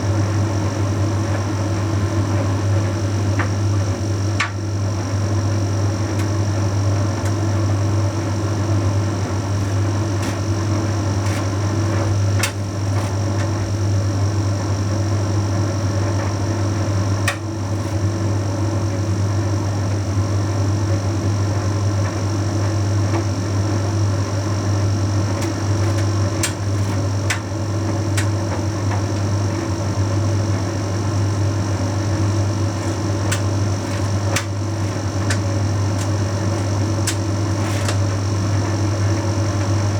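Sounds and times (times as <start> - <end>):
tumble dryer humming: 0.0 - 39.9
load clicking in dryer drum: 2.8 - 14.1, 16.1 - 18.4, 24.4 - 39.9.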